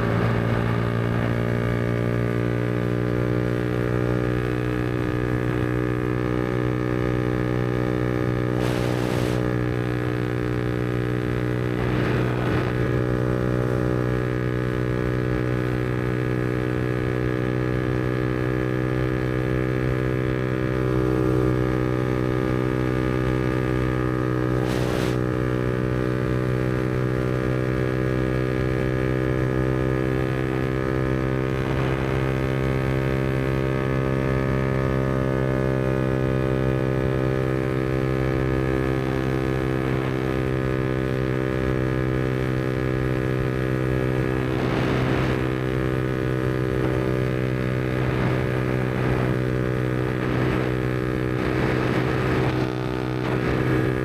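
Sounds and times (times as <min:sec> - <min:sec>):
motorcycle engine cruising: 0:00.0 - 0:54.0
brief rushes of noise: 0:08.6 - 0:09.6, 0:24.5 - 0:25.3.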